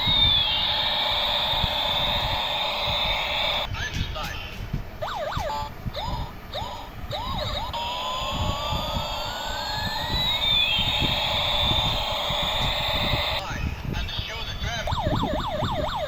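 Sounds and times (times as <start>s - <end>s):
toy chirping blips: 0.0s - 3.7s, 5.0s - 13.4s
toy siren-like whine: 0.0s - 3.7s, 5.0s - 13.4s, 14.8s - 16.0s.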